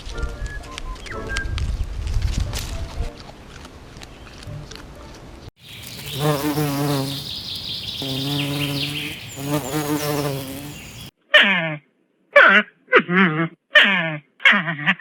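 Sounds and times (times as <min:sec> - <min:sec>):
high hiss: 0:05.6 - 0:11.1
insect buzzing: 0:05.6 - 0:11.1.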